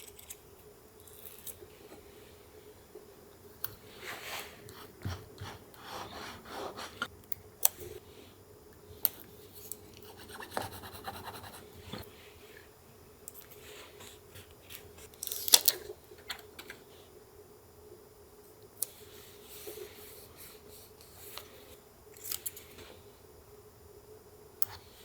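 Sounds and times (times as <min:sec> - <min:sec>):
paper rustling and scratching: 0:04.0 - 0:07.1.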